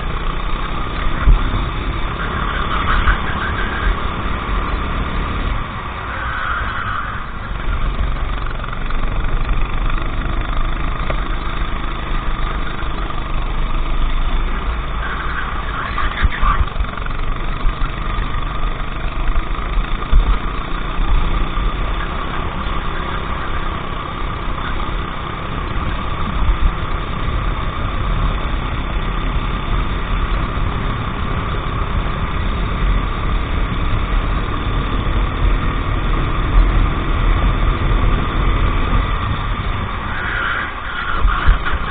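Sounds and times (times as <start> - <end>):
heavy low rumble: 0.0 - 41.9
racing kart engine running: 0.0 - 41.9.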